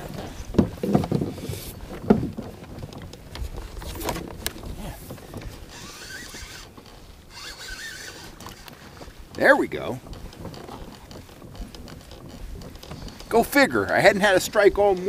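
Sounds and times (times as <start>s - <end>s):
fishing gear knocking and rattling: 0.0s - 15.0s
spinning reel whirring: 3.8s - 15.0s.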